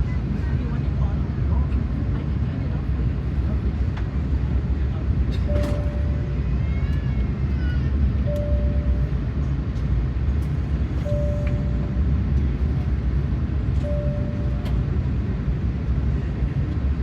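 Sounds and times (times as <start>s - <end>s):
airliner cabin rumble: 0.0s - 17.0s
short steady tone: 8.3s - 9.2s, 11.0s - 12.2s, 13.8s - 14.9s.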